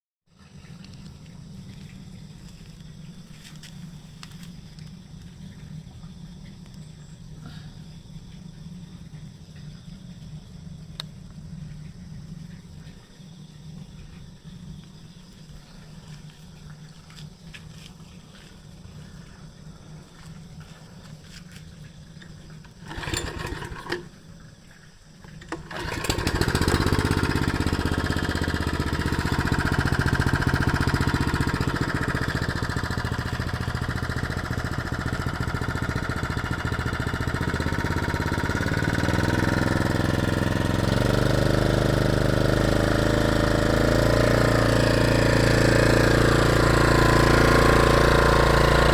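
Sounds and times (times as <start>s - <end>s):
lawn mower engine running: 22.5s - 24.2s, 25.2s - 48.9s.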